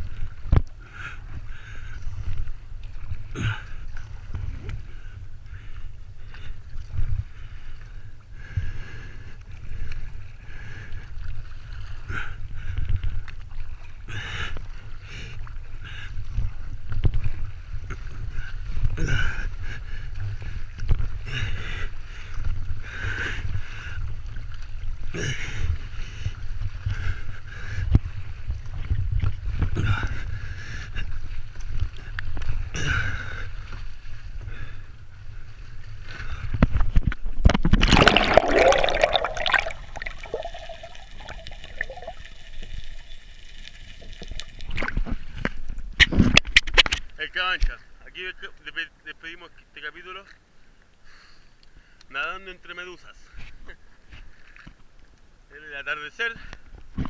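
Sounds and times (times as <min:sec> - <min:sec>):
water rumble: 0:00.0 - 0:47.2
paddle strokes splashing: 0:37.6 - 0:45.9.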